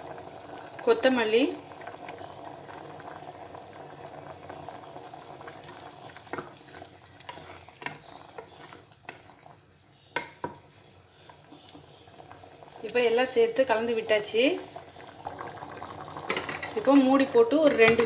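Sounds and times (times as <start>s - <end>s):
pot bubbling and hissing: 0.0s - 18.0s
spoon stirring a pot: 5.5s - 12.5s, 16.2s - 18.0s
spoon tapping against pot: 10.1s - 10.6s, 17.7s - 18.0s.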